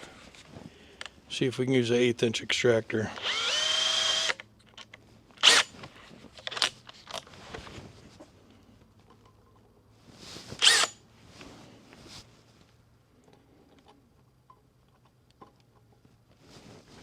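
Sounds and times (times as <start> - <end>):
power drill spinning: 3.2 - 4.4, 5.4 - 5.7, 10.6 - 11.0.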